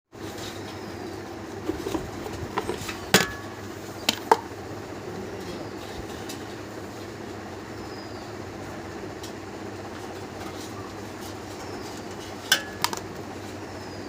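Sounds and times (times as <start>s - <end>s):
steady mechanical hum: 0.1s - 14.0s.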